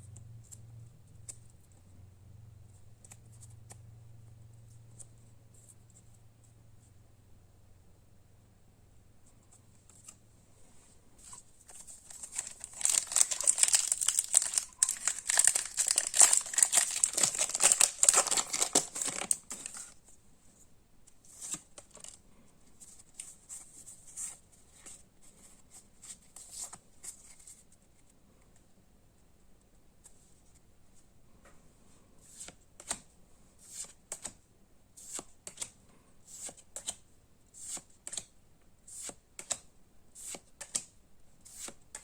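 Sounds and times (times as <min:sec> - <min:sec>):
packaging and cards rustling: 0:11.2 - 0:20.0
foil wrapper crinkling and tearing: 0:11.8 - 0:19.9.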